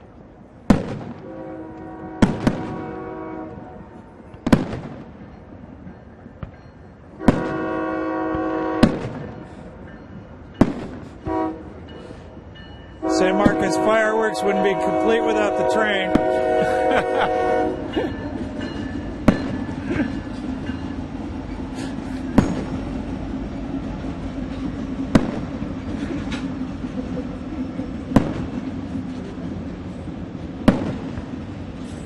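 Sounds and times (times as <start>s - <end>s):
train rumbling past: 0.0s - 32.0s
fireworks banging: 0.7s - 1.3s, 2.2s - 2.9s, 4.3s - 5.3s, 7.2s - 7.7s, 8.8s - 9.4s, 10.6s - 11.2s, 16.0s - 17.2s, 19.2s - 19.8s, 22.3s - 22.8s, 25.1s - 25.7s, 28.1s - 28.7s, 30.6s - 31.4s
train horn chord: 1.2s - 4.1s, 7.2s - 9.0s, 11.2s - 11.8s, 13.0s - 17.9s.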